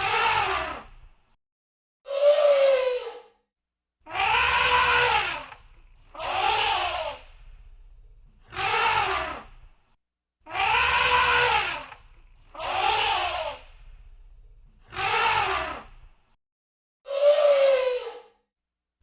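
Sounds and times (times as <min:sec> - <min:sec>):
elephant trumpeting: 0:04.1 - 0:07.3, 0:08.5 - 0:09.5, 0:10.5 - 0:13.6, 0:14.9 - 0:15.9
low rumble: 0:07.2 - 0:08.4, 0:13.6 - 0:14.8.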